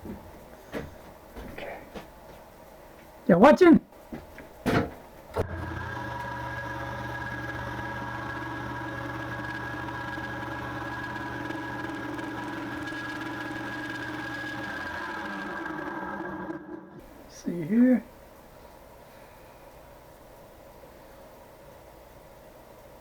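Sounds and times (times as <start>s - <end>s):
milling machine spindle whine: 5.3s - 17.0s.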